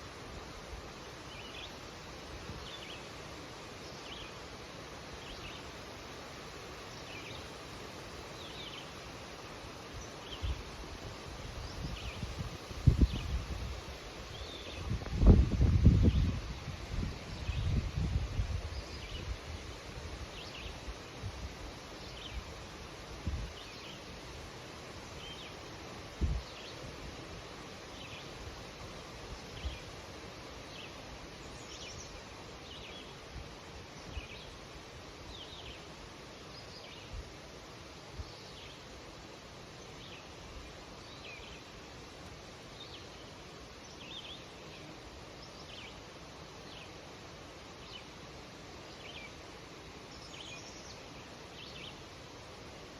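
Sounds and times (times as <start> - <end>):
wind rustling in leaves: 0.0 - 52.9
small birds chirping: 5.2 - 15.0, 42.7 - 48.2, 48.8 - 52.6
wind gusts bumping microphone: 10.3 - 20.4, 22.3 - 23.7, 26.1 - 27.1.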